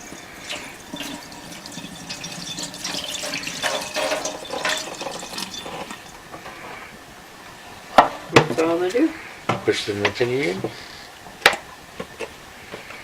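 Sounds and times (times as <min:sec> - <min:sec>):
liquid pouring into plastic tank: 0:00.0 - 0:06.3.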